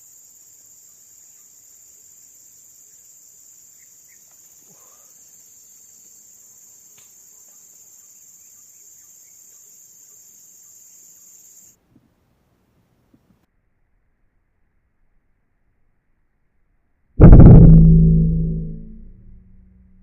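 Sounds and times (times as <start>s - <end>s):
high-pitched insect chorus: 0.0s - 11.8s.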